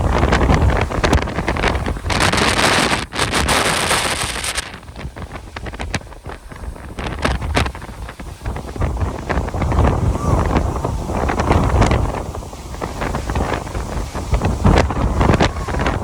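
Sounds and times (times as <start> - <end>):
wind gusts buffeting microphone: 0.0 - 16.0
low rumble: 9.4 - 16.0.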